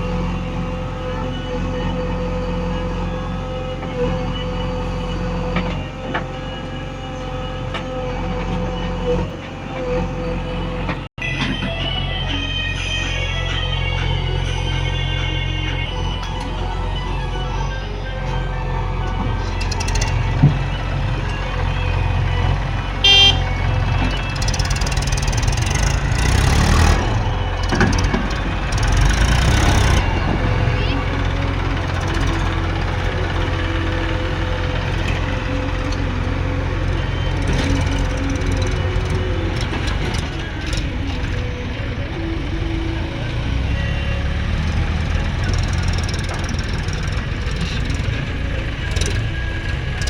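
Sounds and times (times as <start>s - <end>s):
diesel engines droning: 0.0s - 50.0s
vehicle horn toot: 19.8s - 41.5s.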